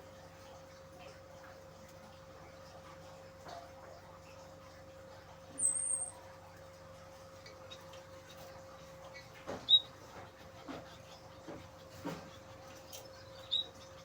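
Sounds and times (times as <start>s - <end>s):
small birds calling: 5.6s - 6.2s.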